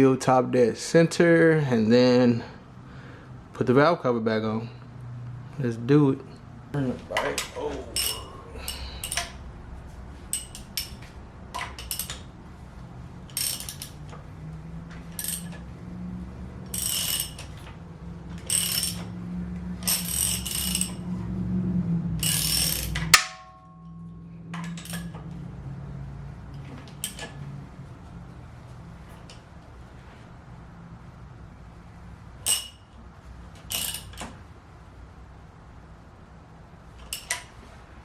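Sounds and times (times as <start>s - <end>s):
steady low hum: 4.5s - 38.0s
socket ratchet clicking: 8.0s - 9.4s, 10.3s - 12.3s, 13.3s - 14.2s, 15.1s - 15.6s, 16.7s - 17.7s, 18.4s - 19.1s, 19.8s - 21.0s, 22.2s - 23.3s, 32.4s - 32.8s, 33.6s - 34.4s, 37.0s - 37.5s.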